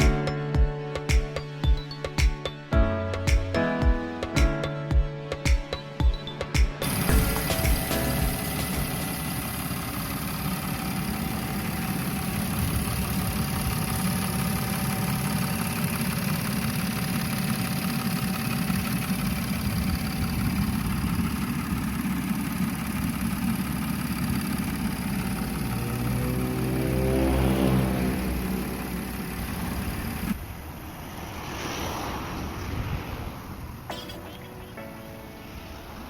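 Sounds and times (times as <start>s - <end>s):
car engine idling: 6.2s - 31.0s.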